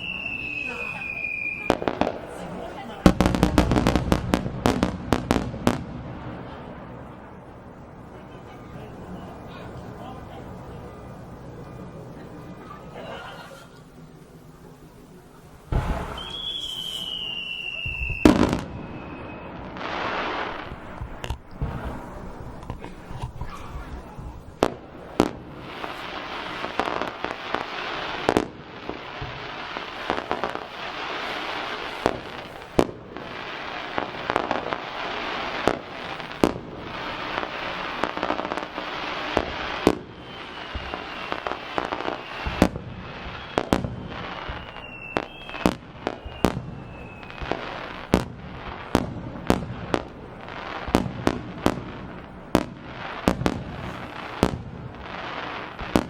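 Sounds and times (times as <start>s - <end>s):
firework whistle gliding down: 0.0s - 2.2s, 15.7s - 20.7s, 38.6s - 48.2s
firework crackling: 0.0s - 56.0s
firework shell bangs: 15.7s - 18.8s.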